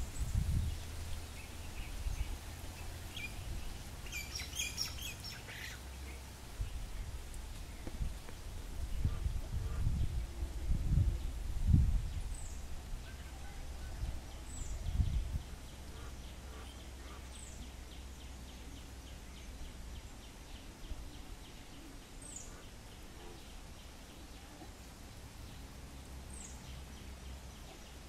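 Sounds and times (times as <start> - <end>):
low microphone rumble: 0.0 - 5.0, 6.0 - 13.1, 13.7 - 16.6
small bird calling: 1.3 - 6.2.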